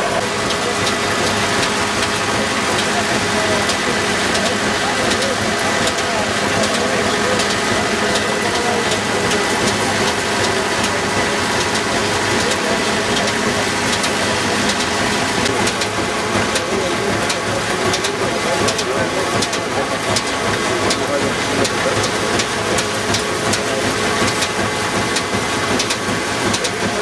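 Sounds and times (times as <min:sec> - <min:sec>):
threshing machine clattering: 0:00.0 - 0:27.0
tractor engine running: 0:00.0 - 0:27.0.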